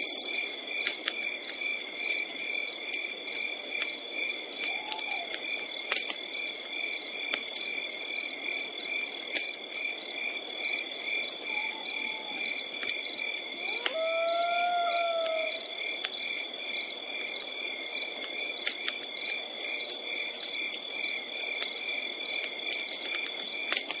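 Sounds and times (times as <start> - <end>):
high insect trill: 0.0 - 0.6
crickets chirping: 0.0 - 23.8
campfire crackling: 0.0 - 24.0
drawn-out animal call: 11.4 - 12.7, 13.6 - 15.8.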